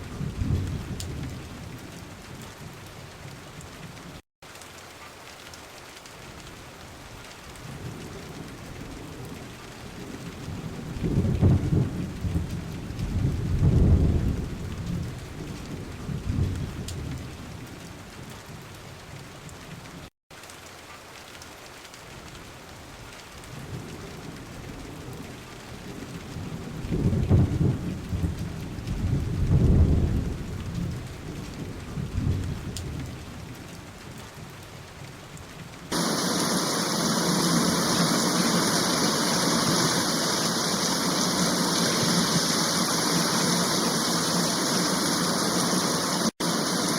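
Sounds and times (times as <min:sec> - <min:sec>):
rolling thunder: 0:00.0 - 0:02.0, 0:07.7 - 0:17.4, 0:25.8 - 0:33.3, 0:35.9 - 0:46.9
heavy rain rushing: 0:00.0 - 0:19.8, 0:21.8 - 0:35.2, 0:35.9 - 0:46.9
steady rain: 0:00.0 - 0:46.9.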